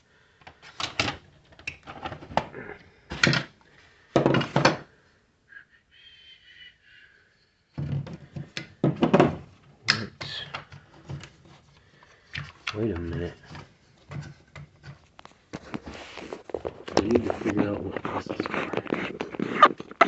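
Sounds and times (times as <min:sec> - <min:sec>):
hard plastic parts knocking: 0:03.1 - 0:04.9, 0:07.8 - 0:17.6.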